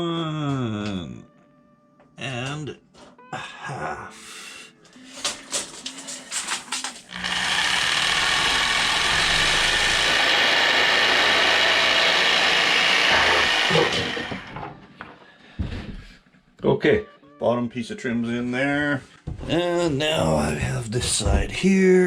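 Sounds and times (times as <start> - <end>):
clicks and knocks: 5.2 - 7.2
power saw cutting: 7.0 - 14.8.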